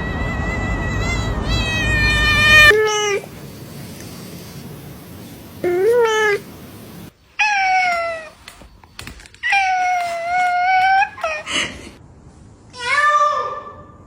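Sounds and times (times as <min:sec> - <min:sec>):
cat meowing: 0:00.0 - 0:03.2.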